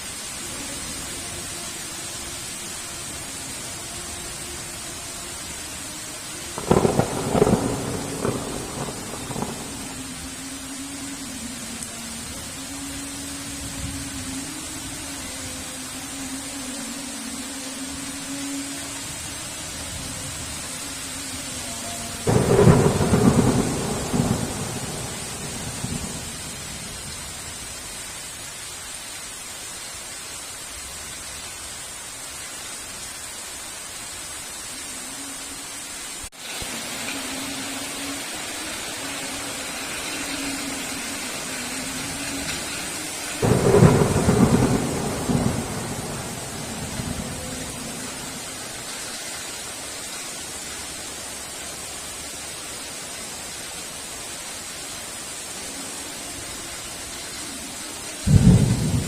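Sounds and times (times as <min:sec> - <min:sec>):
heavy rain hiss: 0:00.0 - 0:59.0
thunderclap rumbling: 0:06.6 - 0:10.0, 0:22.3 - 0:26.7, 0:43.4 - 0:48.7, 0:58.3 - 0:59.0.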